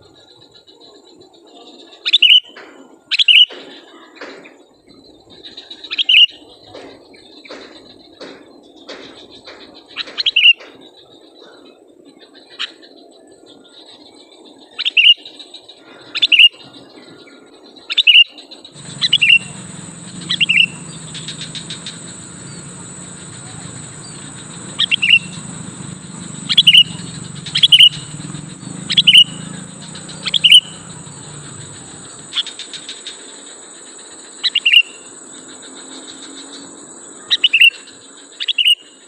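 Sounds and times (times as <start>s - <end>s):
low hum: 18.8s - 32.4s
steady high whine: 18.8s - 32.6s
bulbul calling: 18.8s - 32.8s.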